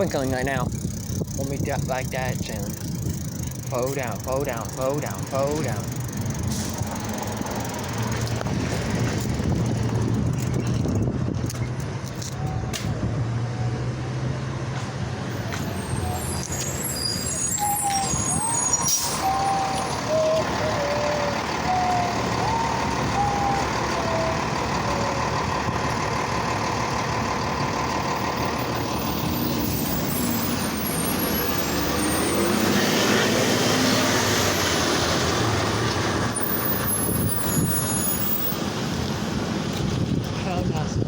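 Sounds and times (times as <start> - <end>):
traffic: 0.0 - 41.0
wind and road noise: 0.0 - 41.0
short gliding high tones: 15.7 - 25.4.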